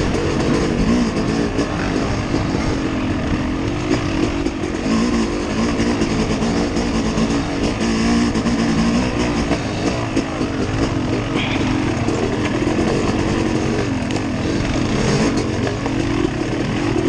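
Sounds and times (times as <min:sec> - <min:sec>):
driving noise rumble: 0:00.0 - 0:17.0
vehicle engine revving: 0:00.0 - 0:17.0.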